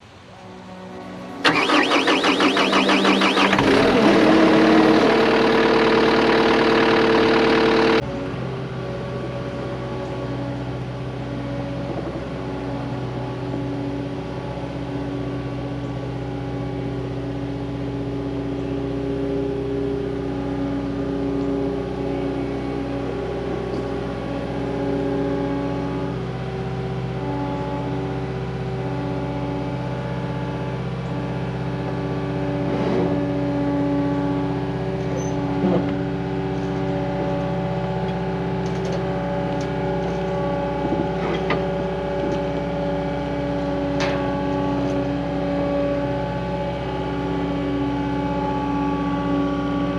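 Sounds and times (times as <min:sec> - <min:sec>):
diesel engine starting and idling: 0:00.0 - 0:09.0.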